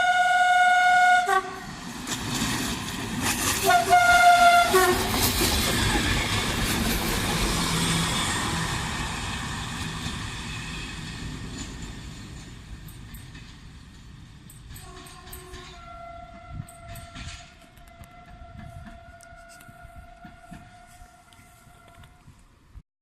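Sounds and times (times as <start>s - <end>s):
train horn: 0.0s - 1.8s, 3.6s - 5.5s, 14.8s - 22.5s
train rumbling: 0.0s - 22.8s
wheels clacking over rail joints: 1.8s - 22.2s.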